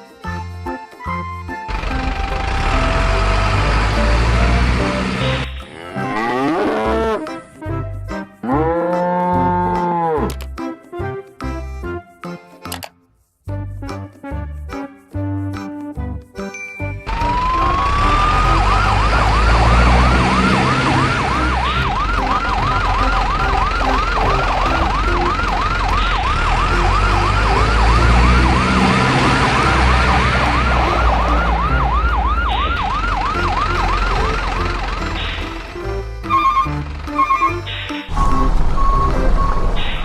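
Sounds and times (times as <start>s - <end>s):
electronic siren wailing: 1.9s - 3.7s, 17.1s - 35.6s, 36.3s - 40.0s.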